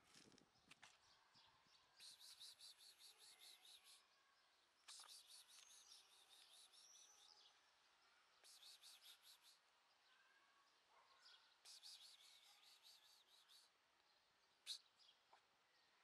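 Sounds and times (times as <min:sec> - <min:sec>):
quick high bird chirps: 0:04.8 - 0:07.2, 0:08.4 - 0:09.6, 0:11.2 - 0:13.7, 0:14.6 - 0:15.0
short whistled bird notes: 0:14.6 - 0:15.1.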